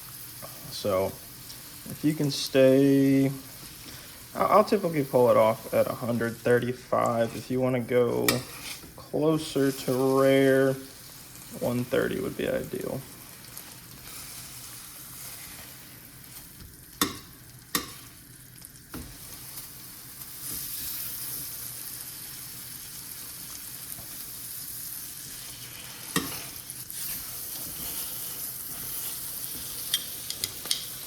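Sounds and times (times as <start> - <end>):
steak sizzling in a pan: 0.0 - 31.0
sharp clicks of utensils: 29.8 - 31.0.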